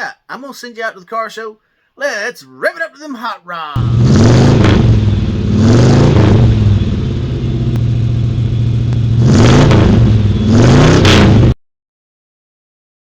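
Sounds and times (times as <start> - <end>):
car engine revving: 3.8 - 11.6.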